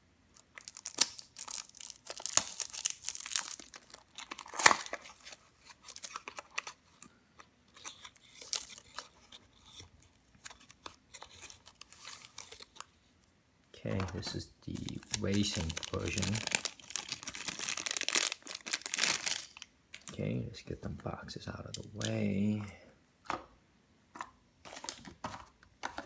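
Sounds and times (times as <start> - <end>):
packaging tearing and crinkling: 0.3 - 6.8, 7.7 - 12.9, 14.0 - 20.1.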